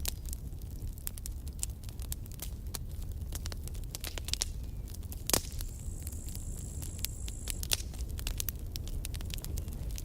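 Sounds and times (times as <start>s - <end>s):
low fire rumble: 0.0s - 10.0s
wood crackling and popping: 0.0s - 10.0s.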